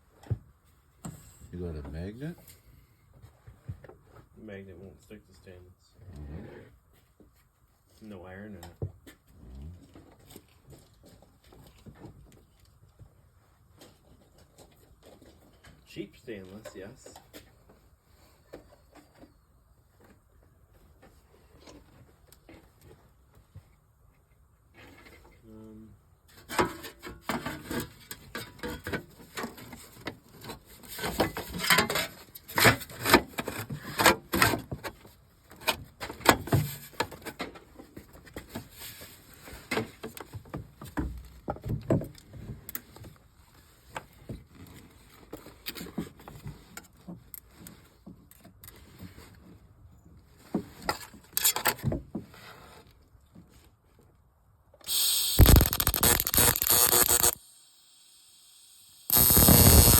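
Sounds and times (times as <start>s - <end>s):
welder arc hissing: 54.9s - 59.9s.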